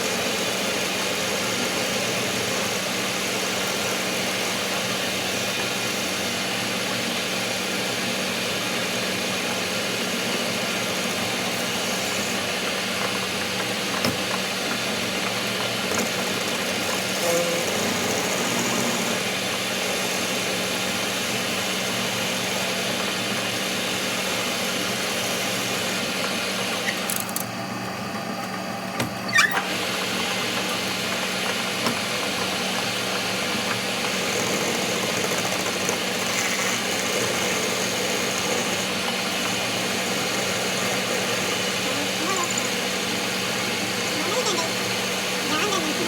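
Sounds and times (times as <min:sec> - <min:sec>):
machine humming: 0:10.1 - 0:21.7.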